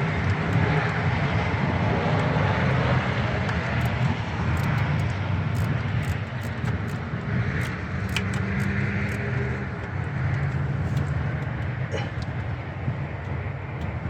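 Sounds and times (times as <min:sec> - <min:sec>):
hand tools clicking on metal: 0:03.6 - 0:09.4.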